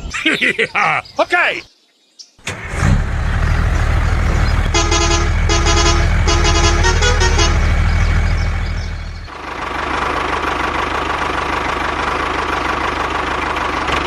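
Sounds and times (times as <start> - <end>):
small vehicle engine running: 2.4 - 14.0
horn honking: 3.7 - 9.3.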